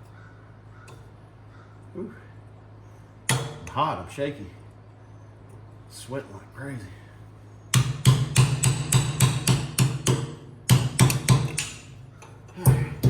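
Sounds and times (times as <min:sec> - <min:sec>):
hammer striking steel: 0:03.3 - 0:03.8, 0:07.7 - 0:11.9.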